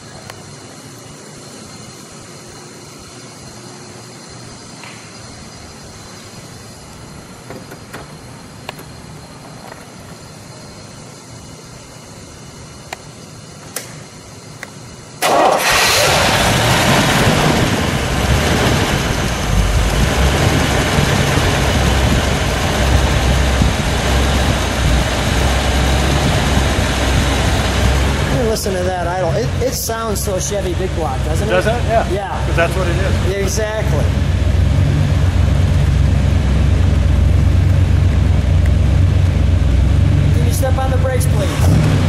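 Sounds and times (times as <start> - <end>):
car engine starting and idling: 15.2 - 42.0.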